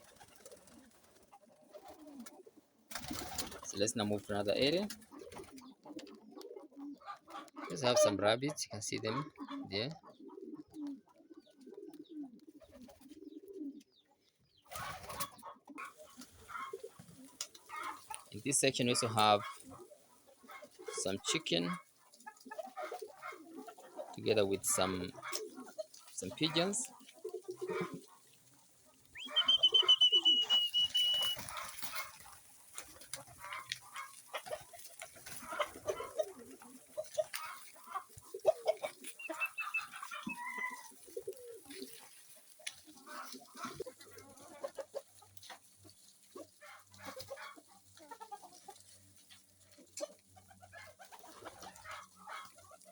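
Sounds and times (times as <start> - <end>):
hens clucking: 0.0 - 52.9
pigeons cooing: 0.0 - 52.9
loud drawn-out chicken call: 29.2 - 32.1, 38.7 - 40.9.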